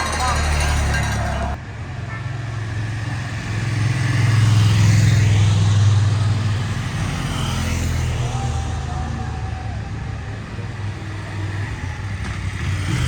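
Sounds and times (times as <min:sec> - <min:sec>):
motor vehicle passing by: 0:02.6 - 0:13.0.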